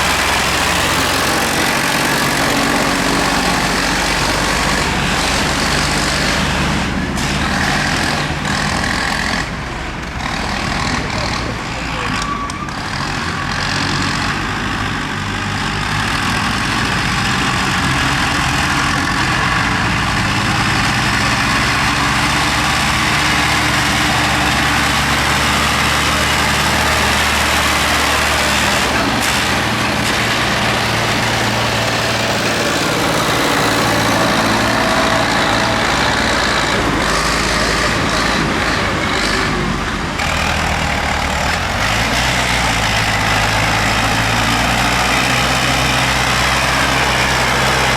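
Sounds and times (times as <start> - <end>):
tractor engines running: 0.0 - 47.9.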